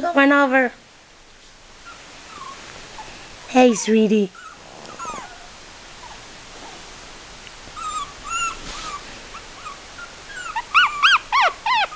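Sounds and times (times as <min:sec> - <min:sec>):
puppies whimpering: 0:01.8 - 0:03.1, 0:03.7 - 0:06.3, 0:07.8 - 0:11.9.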